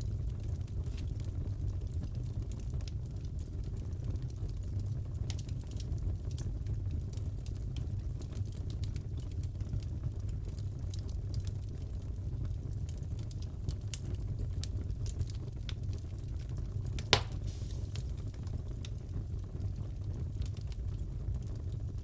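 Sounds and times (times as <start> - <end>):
fire crackling: 0.0 - 22.0
loud sharp pop: 17.0 - 18.1.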